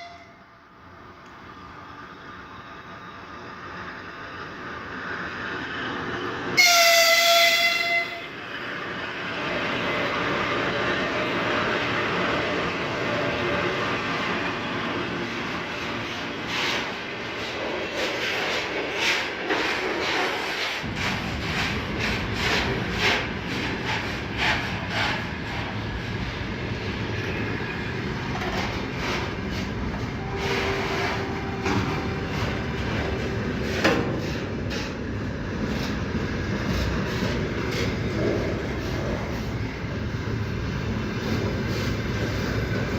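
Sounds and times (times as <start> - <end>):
approaching train noise: 0.0 - 42.9
locomotive horn blast: 6.6 - 8.3, 30.1 - 33.5
wheels clacking over rail joints: 28.0 - 39.5.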